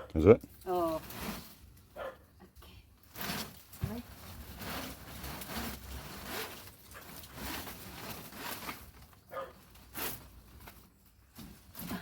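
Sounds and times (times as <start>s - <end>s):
thorny brush rustling and scraping: 0.4s - 12.0s.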